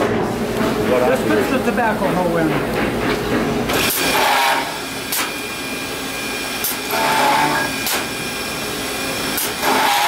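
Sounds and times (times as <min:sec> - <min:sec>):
steady machine hum: 0:00.0 - 0:10.0
whining drilling: 0:03.8 - 0:08.4, 0:09.4 - 0:10.0.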